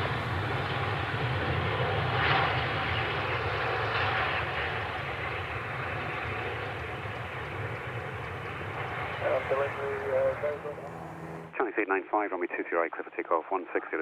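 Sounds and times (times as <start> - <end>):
jet airliner engines running: 0.0 - 11.6.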